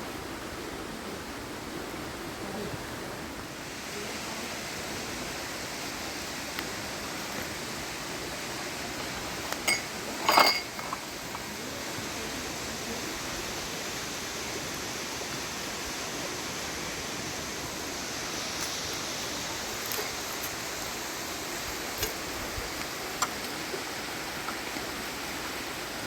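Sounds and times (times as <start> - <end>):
waterfall rushing: 0.0 - 26.0
dishes clinking: 9.0 - 11.5.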